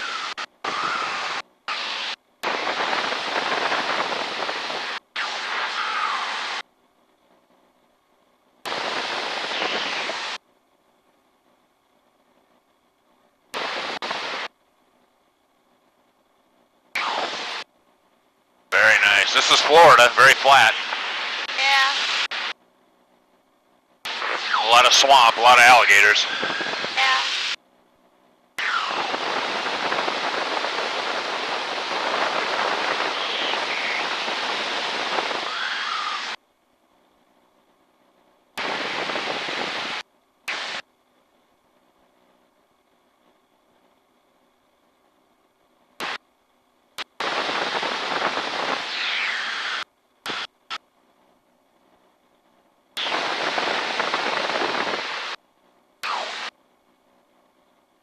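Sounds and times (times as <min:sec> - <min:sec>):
rushing static hiss: 0:00.0 - 0:06.7, 0:08.7 - 0:10.4, 0:13.6 - 0:14.6, 0:17.0 - 0:17.7, 0:18.7 - 0:22.6, 0:24.1 - 0:27.6, 0:28.6 - 0:36.4, 0:38.6 - 0:40.9, 0:46.0 - 0:46.2, 0:47.0 - 0:50.8, 0:53.0 - 0:55.4, 0:56.0 - 0:56.6
aircraft cockpit wind and engine: 0:00.0 - 0:58.0.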